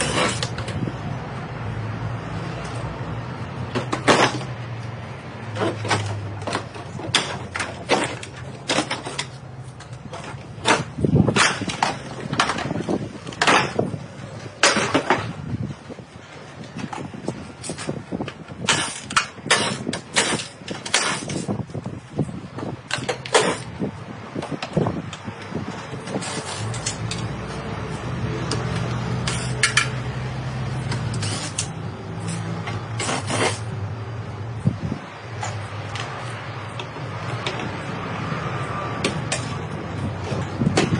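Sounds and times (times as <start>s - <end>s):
rasping metal scrape: 0.0s - 0.6s, 26.0s - 27.4s, 30.8s - 33.8s
car parts knocking and clanking: 0.0s - 1.0s, 2.6s - 40.9s.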